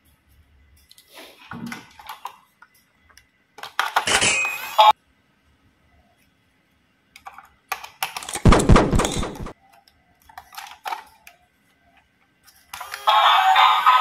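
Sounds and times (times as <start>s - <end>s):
plastic toys clicking and clattering: 0.8s - 4.4s, 7.1s - 13.1s.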